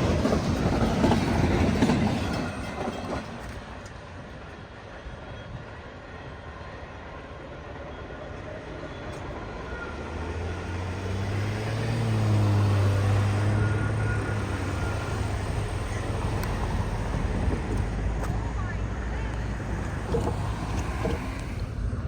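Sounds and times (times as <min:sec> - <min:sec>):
vehicle passing by: 0:09.2 - 0:22.0.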